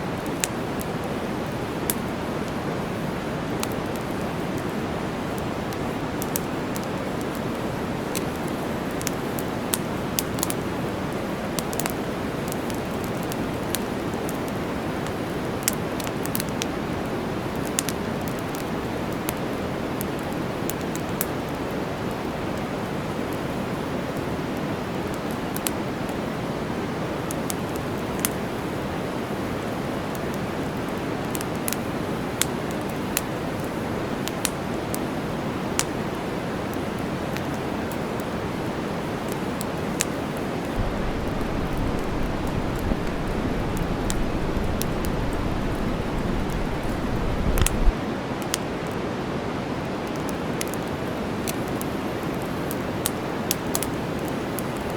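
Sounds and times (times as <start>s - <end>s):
white-noise hiss: 0.0s - 54.9s
campfire crackling: 0.2s - 26.3s, 35.6s - 48.5s, 50.1s - 54.9s.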